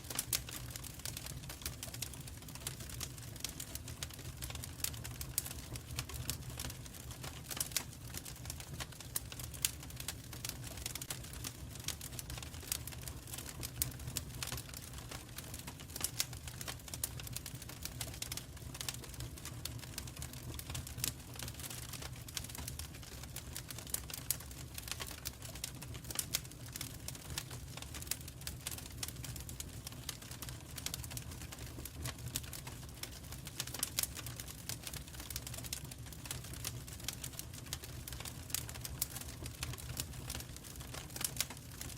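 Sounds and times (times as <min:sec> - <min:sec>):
wood fire crackling and popping: 0:00.0 - 0:41.9
low fire rumble: 0:00.1 - 0:41.9.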